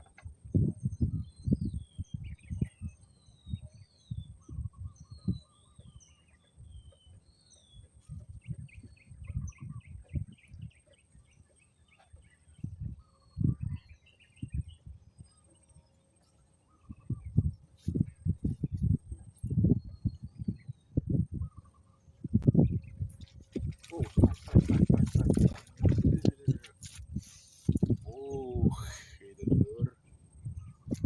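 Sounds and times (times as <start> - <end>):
wind buffeting microphone: 0.0 - 16.1, 16.7 - 31.0
birds whistling and chirping: 0.5 - 18.9.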